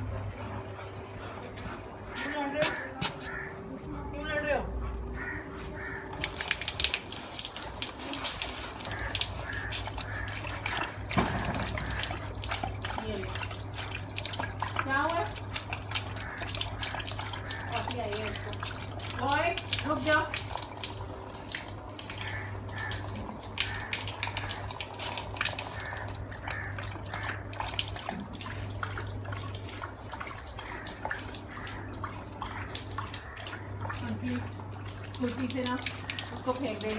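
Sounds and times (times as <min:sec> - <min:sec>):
water splashing and dripping: 0:01.2 - 0:36.9.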